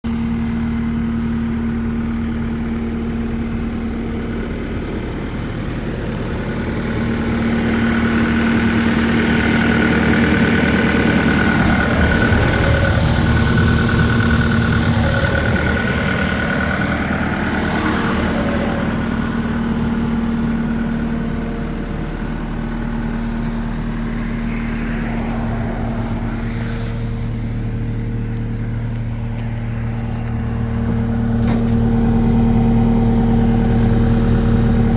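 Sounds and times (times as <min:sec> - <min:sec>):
diesel engine idling: 0:00.0 - 0:34.9
engine whine: 0:00.0 - 0:34.9.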